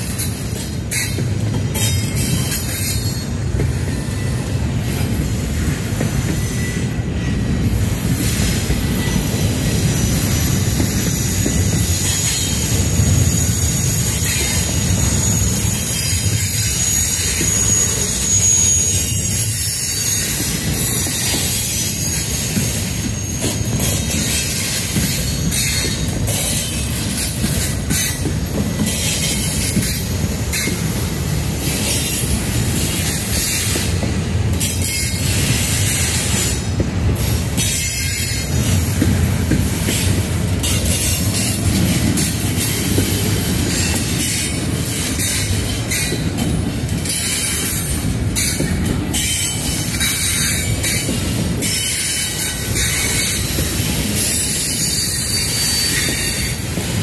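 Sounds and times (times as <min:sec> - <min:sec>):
train wheels rumbling on rails: 0:00.0 - 0:57.0
high screeching: 0:12.0 - 0:24.1.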